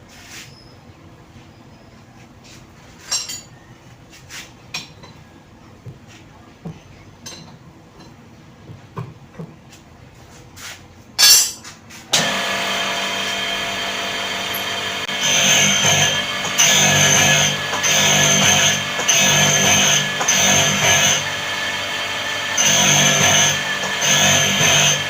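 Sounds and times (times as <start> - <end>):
metal tools clinking and knocking: 3.0 - 3.6, 11.2 - 11.7
loud steady hum: 11.4 - 25.0.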